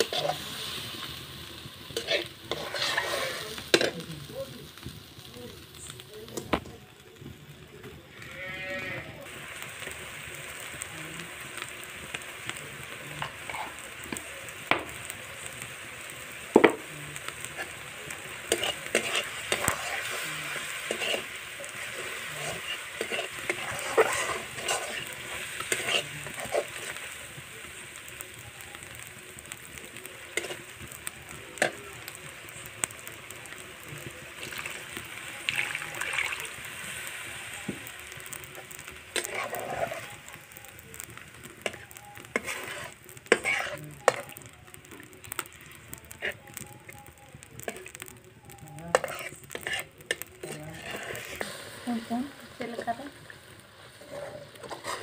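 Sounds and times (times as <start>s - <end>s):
metal spatula scraping a wok: 0.0s - 4.1s, 18.4s - 27.1s, 30.4s - 30.7s, 39.1s - 40.2s, 41.6s - 44.4s, 48.9s - 53.0s, 53.8s - 55.0s
spice paste sizzling in oil: 0.0s - 55.0s.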